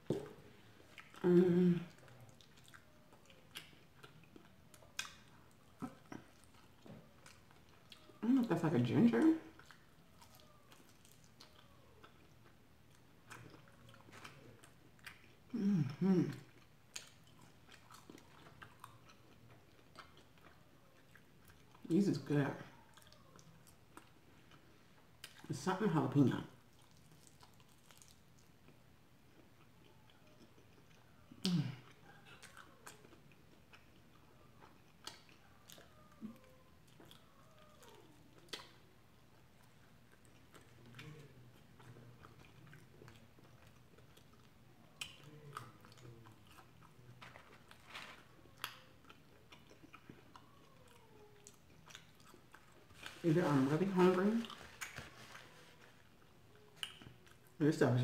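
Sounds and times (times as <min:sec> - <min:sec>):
chewing chicken wings: 0:00.0 - 0:01.3, 0:01.9 - 0:25.5, 0:26.6 - 0:57.7
closed-mouth hum: 0:00.0 - 0:02.2.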